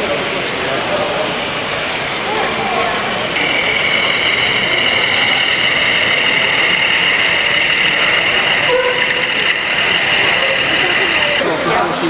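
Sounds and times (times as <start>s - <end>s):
model train high whine: 0.0s - 12.0s
steady rushing noise: 3.1s - 11.4s.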